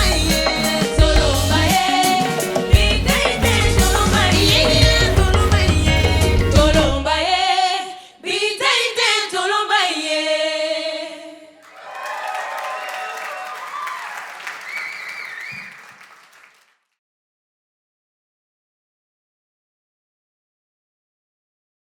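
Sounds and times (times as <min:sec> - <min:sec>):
band accompaniment: 0:00.0 - 0:07.0
women singing in harmony: 0:00.0 - 0:11.6
applause and cheering: 0:11.6 - 0:16.8.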